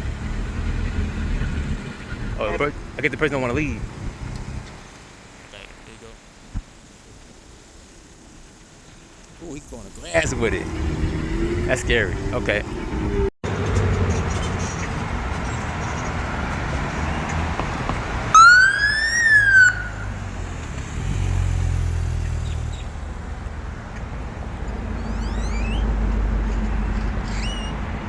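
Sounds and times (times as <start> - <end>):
passing traffic: 0.0 - 28.0
police siren whoop: 18.3 - 20.2, 25.0 - 25.9.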